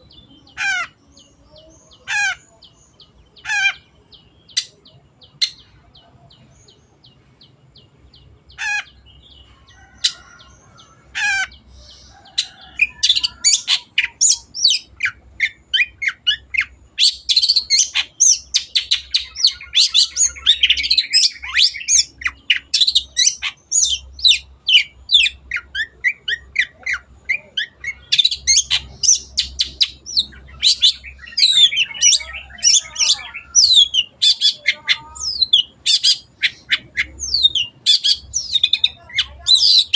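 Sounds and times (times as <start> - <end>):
shrike chattering song: 8.2 - 39.9.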